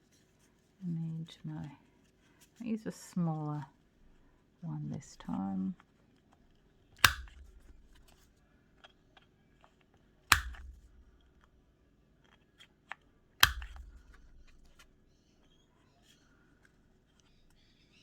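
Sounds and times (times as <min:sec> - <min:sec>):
paper-handling ticks: 0:05.0 - 0:08.2, 0:09.8 - 0:11.5, 0:13.4 - 0:14.9
craft tool snapping clicks: 0:07.0 - 0:08.2, 0:10.3 - 0:11.3, 0:12.9 - 0:14.8.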